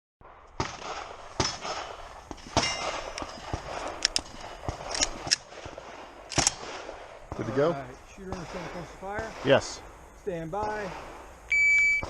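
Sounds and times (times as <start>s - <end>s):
gunshots: 0.2s - 12.0s
metallic clangs on steel targets: 2.6s - 4.4s.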